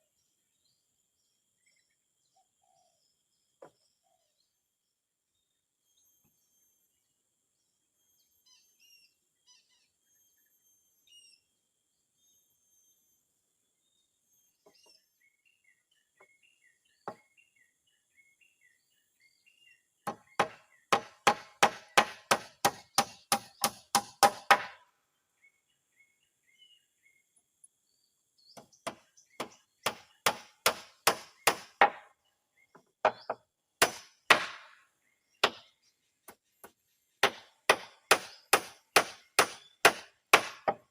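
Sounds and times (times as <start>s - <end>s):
birds chirping: 0.0s - 40.9s
hammer driving nails into wood: 20.1s - 24.8s, 28.9s - 32.1s, 33.0s - 34.8s, 36.6s - 40.9s.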